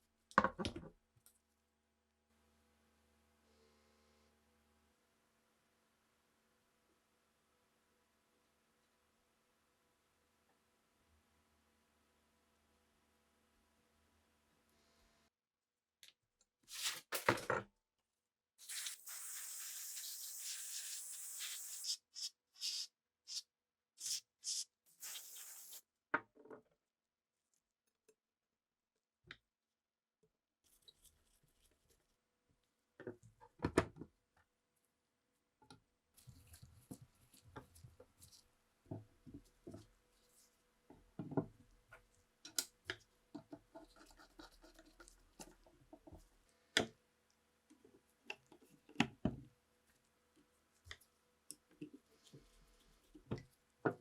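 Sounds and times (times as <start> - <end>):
short hiss: 25.0 - 25.8.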